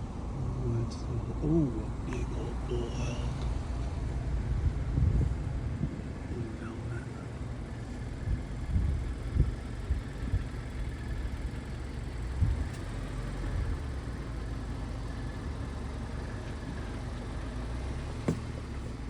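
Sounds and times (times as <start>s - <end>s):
truck engine and road rumble: 0.0s - 19.0s
short knocks: 18.2s - 18.8s.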